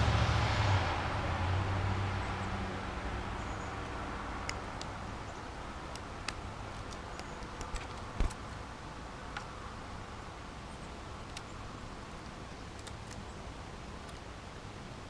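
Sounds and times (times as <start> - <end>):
road traffic rumble: 0.0 - 15.0
birds pecking at feeder: 3.3 - 8.6.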